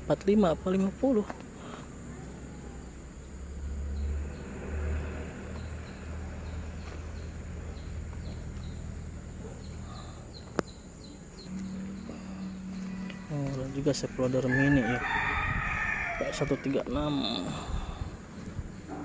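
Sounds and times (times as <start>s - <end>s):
steady low rumble: 0.0s - 14.4s, 16.9s - 19.0s
small bird chirping: 1.7s - 14.4s.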